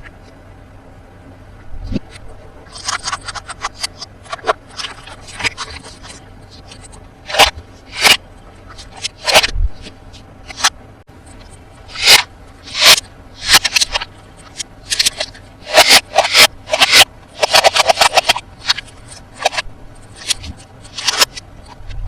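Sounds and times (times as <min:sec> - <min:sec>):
packaging scraping and crinkling: 0:02.7 - 0:09.5.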